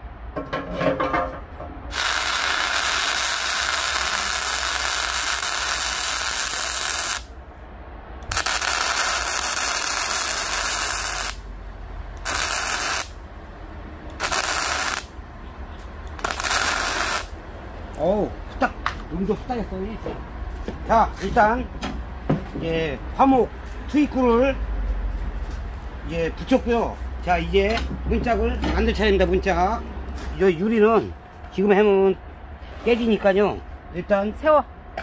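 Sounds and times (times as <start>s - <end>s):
arc welding hiss: 1.9s - 7.3s, 8.3s - 11.4s, 12.2s - 13.2s, 14.2s - 15.1s, 16.2s - 17.4s.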